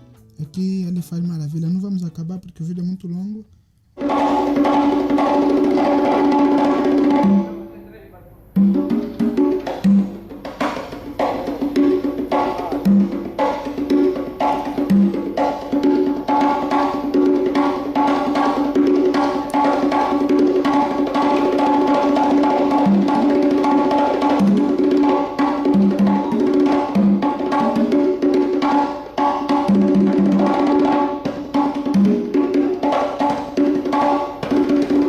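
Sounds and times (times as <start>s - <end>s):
backing music: 0.0s - 7.7s
fast drum strokes: 4.0s - 7.7s, 8.6s - 35.0s.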